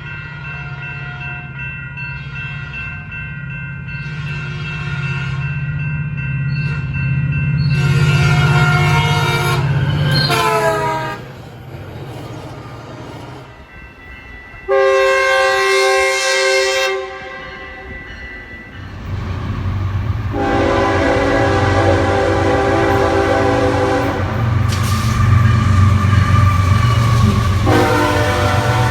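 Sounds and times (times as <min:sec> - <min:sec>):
train horn blowing: 0:07.7 - 0:11.4, 0:14.7 - 0:18.0, 0:20.3 - 0:28.9
locomotive engine rumble: 0:18.9 - 0:28.9.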